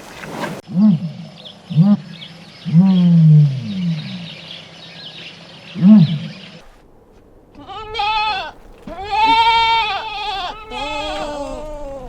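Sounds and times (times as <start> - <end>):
birds chirping: 0.8 - 12.0
lion roaring: 7.8 - 12.0.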